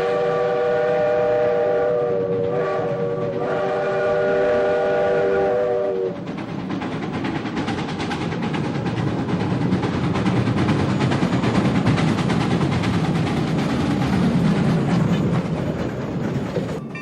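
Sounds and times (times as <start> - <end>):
train whistle chord blasts: 0.0 - 6.2
train rumbling on rails: 0.0 - 17.0.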